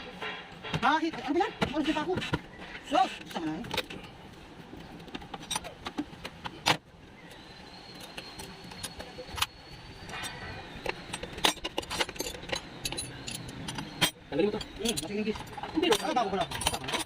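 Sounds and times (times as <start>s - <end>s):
metal hand tools clinking: 10.1s - 17.0s.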